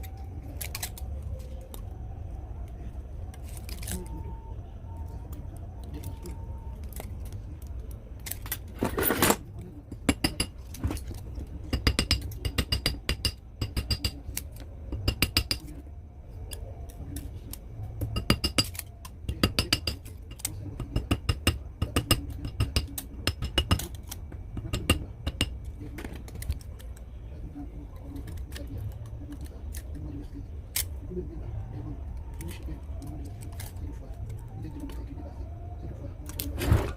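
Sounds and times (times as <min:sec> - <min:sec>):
low steady hum: 0:00.0 - 0:36.9
small hard parts clinking: 0:08.2 - 0:15.8, 0:16.5 - 0:27.0.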